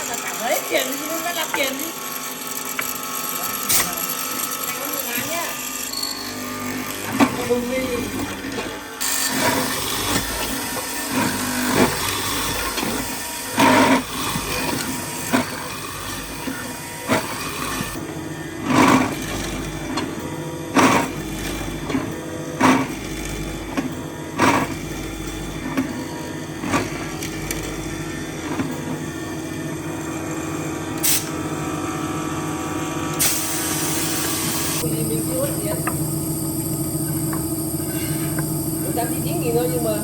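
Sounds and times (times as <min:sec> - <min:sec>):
machine hiss: 0:33.2 - 0:40.0.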